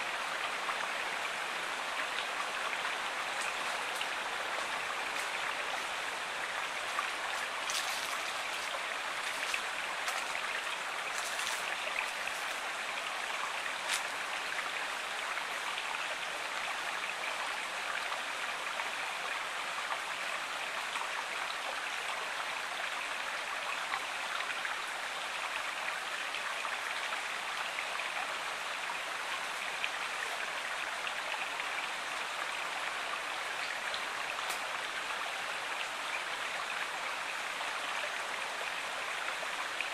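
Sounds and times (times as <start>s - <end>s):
river water rushing: 0.0s - 20.5s, 26.3s - 39.9s
water splashes: 2.0s - 12.8s.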